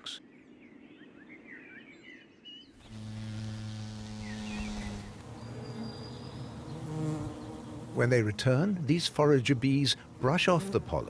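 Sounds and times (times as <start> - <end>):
faint birdsong chirps: 0.0 - 10.1
bees buzzing: 2.8 - 8.6, 10.1 - 11.0.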